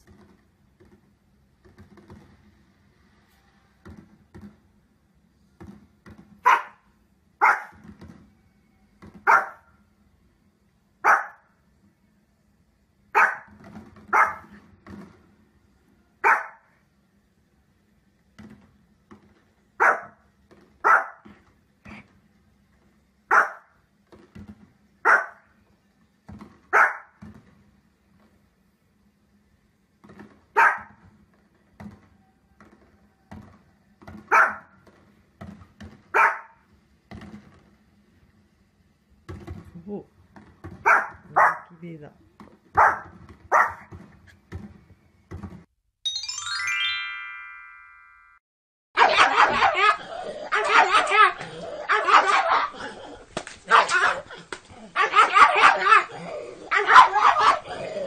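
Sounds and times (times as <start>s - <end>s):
dog barking: 6.4s - 7.8s, 9.2s - 9.7s, 11.0s - 11.5s, 13.2s - 13.5s, 14.1s - 14.5s, 16.2s - 16.7s, 19.8s - 20.2s, 20.8s - 21.3s, 23.3s - 23.7s, 25.0s - 25.4s, 26.7s - 27.2s, 30.6s - 31.0s, 34.3s - 34.7s, 36.2s - 36.6s, 40.8s - 41.7s, 42.8s - 43.9s, 49.0s - 53.0s, 53.7s - 58.0s.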